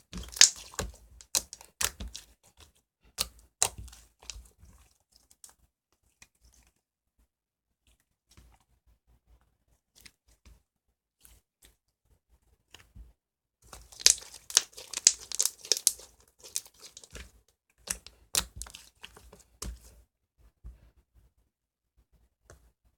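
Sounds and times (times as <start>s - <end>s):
slime crackling and popping: 0.0s - 2.3s, 13.7s - 17.3s, 17.9s - 19.8s.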